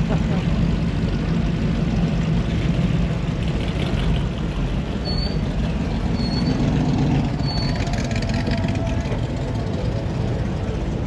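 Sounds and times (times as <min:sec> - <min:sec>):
car engines running: 0:00.0 - 0:11.0.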